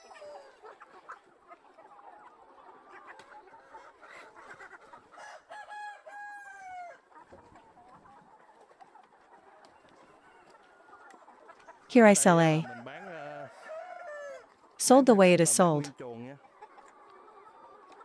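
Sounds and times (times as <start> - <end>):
chickens clucking: 0.0 - 15.3, 16.4 - 18.0
rooster crowing: 5.2 - 7.0.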